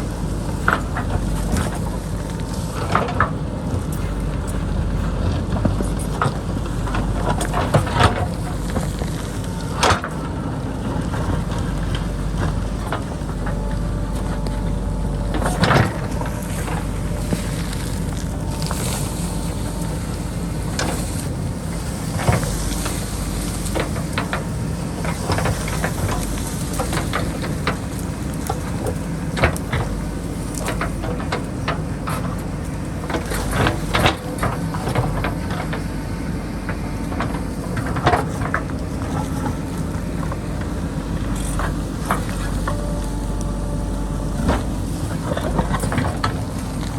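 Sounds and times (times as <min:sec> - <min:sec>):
diesel engine running under load: 0:00.0 - 0:46.9.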